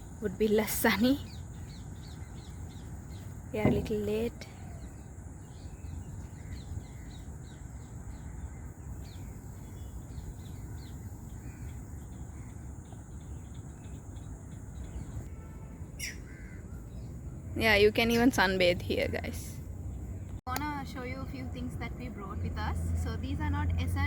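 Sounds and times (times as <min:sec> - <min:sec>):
high insect drone: 0:00.0 - 0:17.3
faint bird chirps: 0:00.0 - 0:18.5
downward-sweeping bird call: 0:14.9 - 0:17.1.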